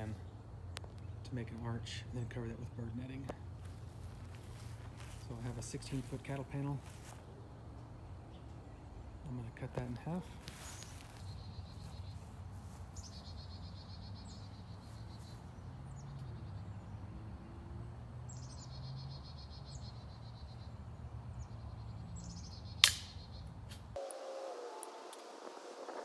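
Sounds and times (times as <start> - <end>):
sharp click: 22.8 - 24.2.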